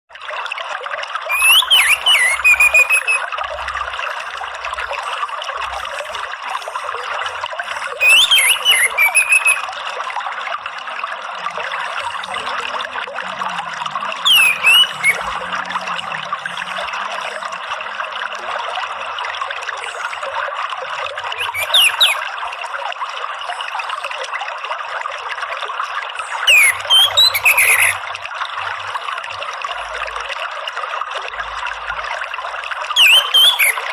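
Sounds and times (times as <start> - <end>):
trickle of running water: 0.1 - 33.9
bird whistling song: 1.3 - 3.3, 7.8 - 9.7, 14.2 - 15.8, 21.4 - 22.2, 26.4 - 28.0, 33.0 - 33.9.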